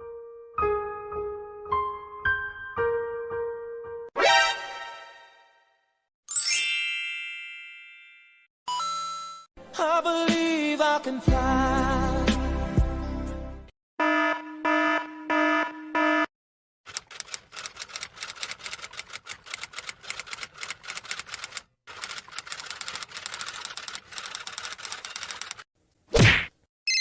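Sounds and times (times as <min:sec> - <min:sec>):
rapid typing clicks: 0:16.9 - 0:25.7.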